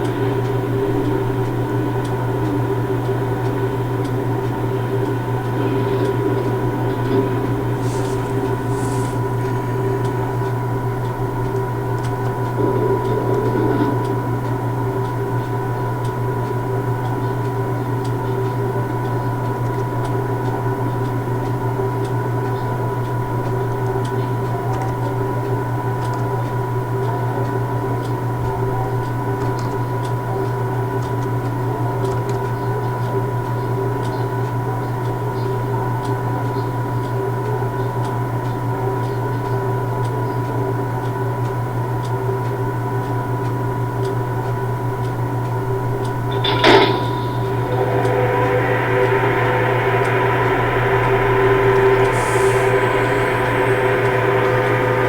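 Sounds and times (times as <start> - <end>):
standing train humming: 0.0 - 22.2, 45.8 - 55.0
faint ticks: 0.0 - 25.0, 46.0 - 55.0.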